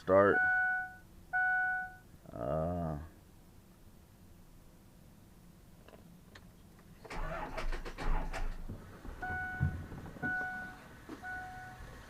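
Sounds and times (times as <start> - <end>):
two-note electronic beep: 0.3 - 2.0, 9.2 - 11.8
clattering with sharp clicks: 5.8 - 9.2.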